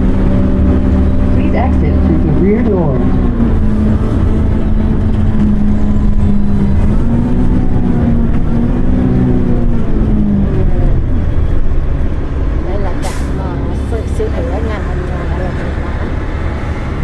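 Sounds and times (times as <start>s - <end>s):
bus engine rumbling: 0.0s - 17.0s
droning hum: 0.0s - 17.0s.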